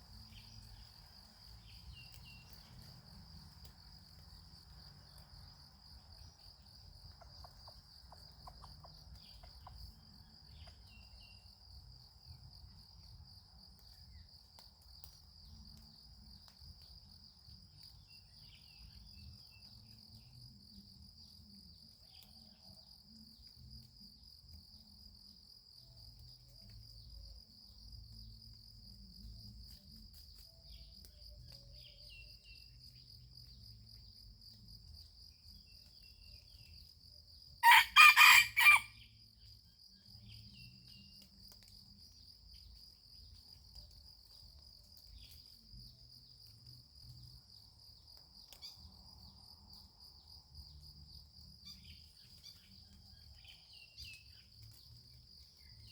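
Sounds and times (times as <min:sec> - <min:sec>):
high insect trill: 0:00.0 - 0:55.9
rooster crowing: 0:37.6 - 0:39.0.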